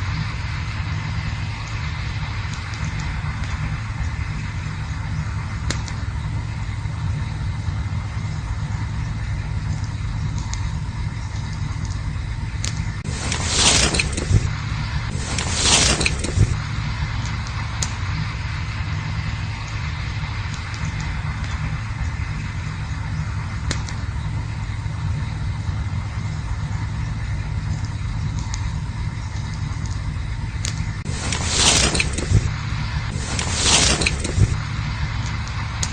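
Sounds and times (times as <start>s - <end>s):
campfire crackles: 0.0s - 35.9s
campfire rumble: 0.0s - 35.9s.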